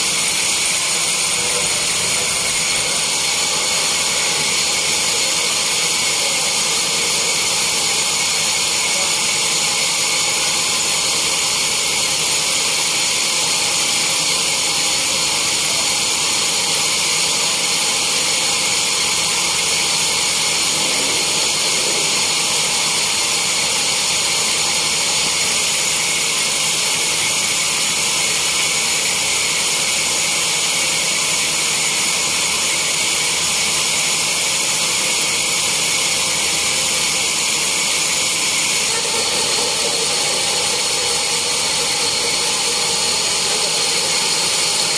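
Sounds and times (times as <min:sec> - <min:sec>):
sawmill saw whining: 0:00.0 - 0:44.9.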